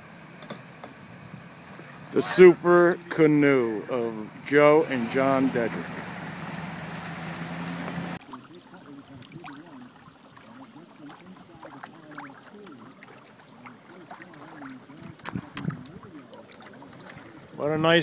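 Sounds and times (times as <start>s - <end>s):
engine hum: 0.0s - 18.0s
light water sounds: 7.9s - 18.0s
faint indistinct voices: 8.2s - 18.0s.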